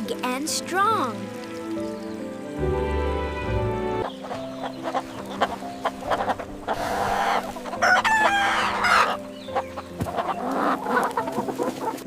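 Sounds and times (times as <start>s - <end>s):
soft background music: 0.0s - 12.0s
chickens clucking: 4.0s - 12.0s.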